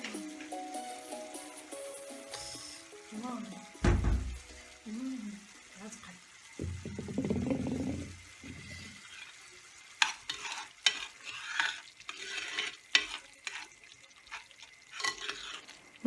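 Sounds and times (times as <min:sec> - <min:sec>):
faint sizzle: 0:00.0 - 0:16.0
spoon scraping a pot: 0:06.9 - 0:15.9.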